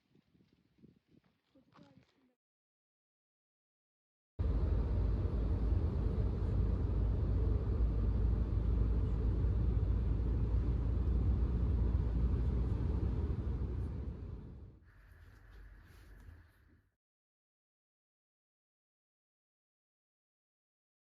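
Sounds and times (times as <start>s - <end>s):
car driving rumble: 4.4s - 14.8s.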